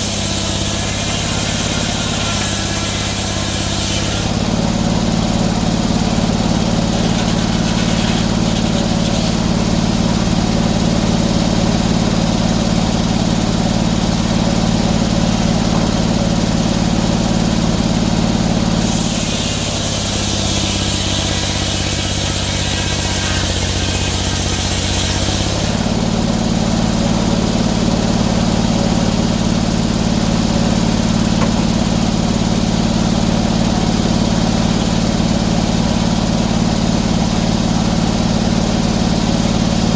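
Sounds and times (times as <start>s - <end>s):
saw cutting wood hiss: 0.0s - 4.7s, 6.1s - 10.0s, 17.9s - 25.9s, 29.0s - 36.2s
sawmill engine running: 0.0s - 39.9s.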